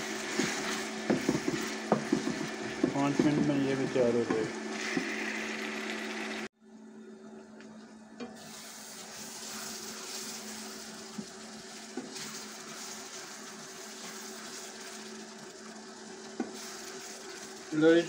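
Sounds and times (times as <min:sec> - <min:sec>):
food sizzling in oil: 0:00.0 - 0:06.5, 0:08.4 - 0:18.0
spoon knocking against pan: 0:01.1 - 0:03.5.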